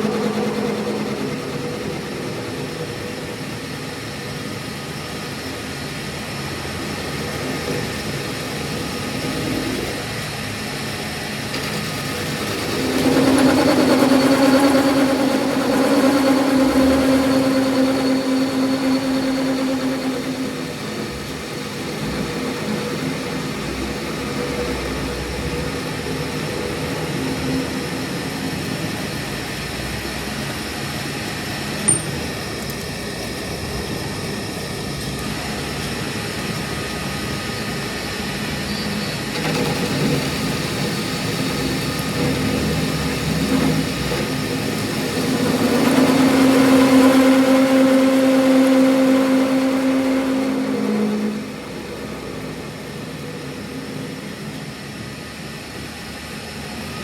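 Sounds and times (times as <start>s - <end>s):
machine motor humming: 12.0s - 29.2s, 40.8s - 54.6s.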